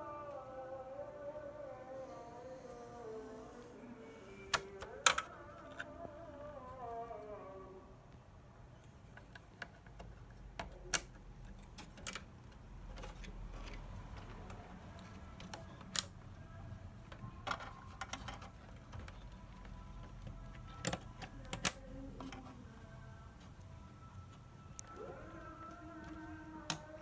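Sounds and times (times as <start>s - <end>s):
tools clicking on a workbench: 9.1s - 16.2s, 17.1s - 22.8s.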